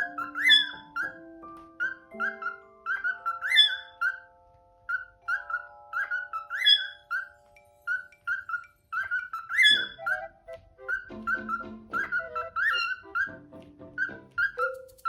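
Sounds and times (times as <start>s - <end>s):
cockatiel rising and falling whistle: 0.0s - 1.2s, 1.8s - 4.2s, 4.9s - 10.2s, 10.9s - 13.4s
cockatiel chirping: 0.0s - 15.0s
soft piano music: 0.0s - 15.0s.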